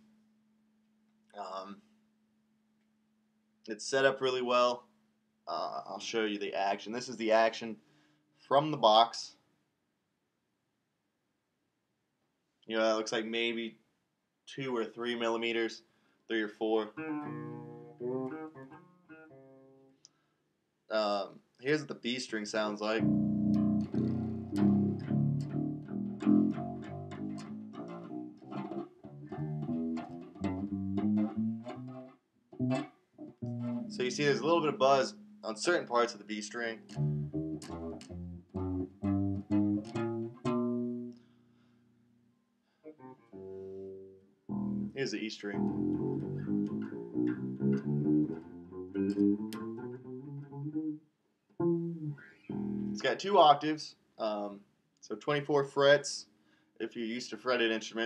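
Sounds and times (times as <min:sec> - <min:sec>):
plucked electric bass notes: 0:16.9 - 0:19.8, 0:22.9 - 0:41.2, 0:42.9 - 0:51.0, 0:51.6 - 0:53.2
bass string fret buzz: 0:17.0 - 0:19.9, 0:23.0 - 0:41.2, 0:42.9 - 0:51.0, 0:51.6 - 0:53.1.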